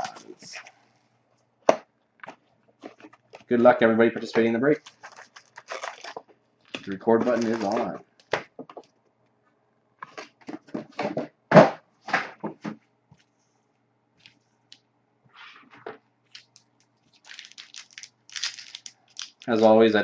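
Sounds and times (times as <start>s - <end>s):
wrappers and cardboard crinkling: 4.4s - 8.9s, 16.3s - 20.0s.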